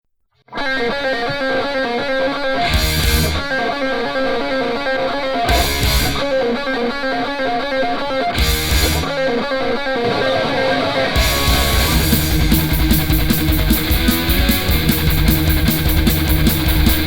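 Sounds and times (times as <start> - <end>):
distorted electric guitar riff: 0.5 - 17.0
heavy metal band playing: 0.8 - 17.0
fast cymbal strokes: 10.8 - 17.0.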